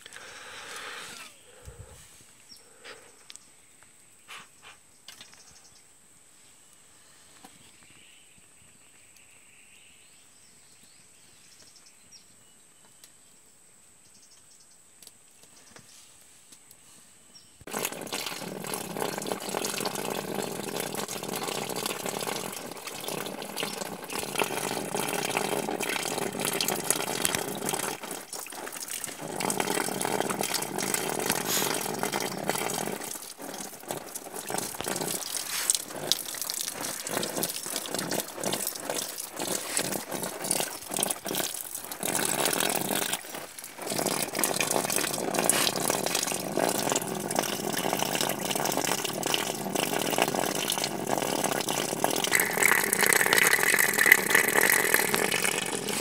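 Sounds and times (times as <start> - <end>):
running water rushing: 17.7 - 56.0.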